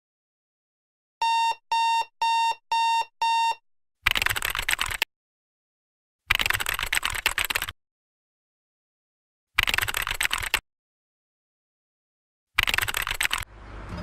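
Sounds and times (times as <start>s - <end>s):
short electronic beeps: 1.2s - 3.6s.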